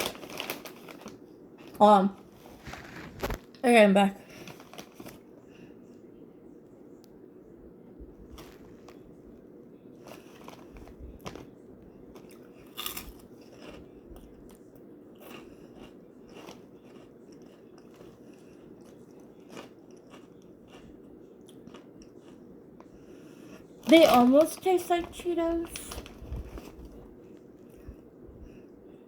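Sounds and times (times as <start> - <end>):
person chewing crunchy snacks: 12.1 - 14.6, 15.2 - 22.5.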